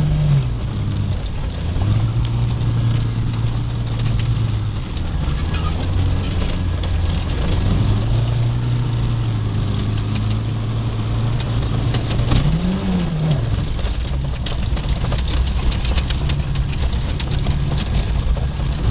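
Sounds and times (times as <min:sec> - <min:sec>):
car engine running: 0:00.0 - 0:18.9.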